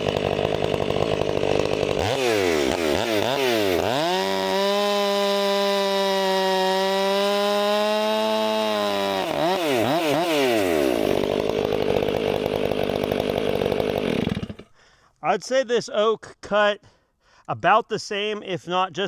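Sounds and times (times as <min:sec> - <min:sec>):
chainsaw engine cutting wood: 0:00.0 - 0:14.8.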